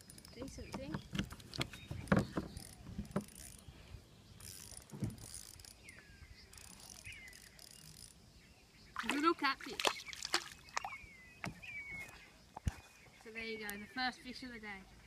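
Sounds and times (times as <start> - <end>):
reel and rod clicks and knocks: 0.0 - 3.7, 4.4 - 5.9
fishing reel cranking: 2.6 - 3.7, 4.4 - 5.9, 6.5 - 8.3.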